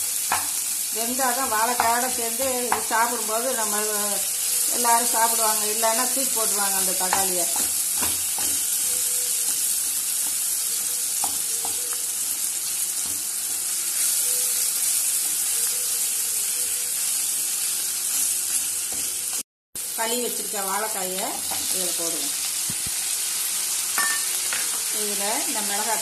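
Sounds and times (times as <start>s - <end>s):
vegetables sizzling in hot oil: 0.0s - 26.0s
wooden spatula knocking on pan: 1.7s - 3.0s, 7.0s - 8.6s.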